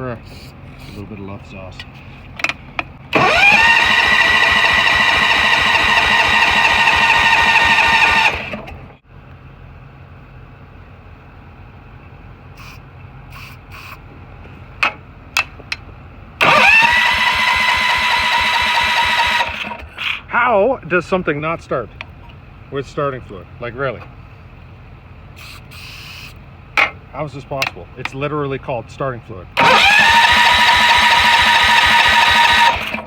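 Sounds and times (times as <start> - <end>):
electric starter cranking engine: 2.4 - 9.0, 16.4 - 20.3, 29.6 - 33.0.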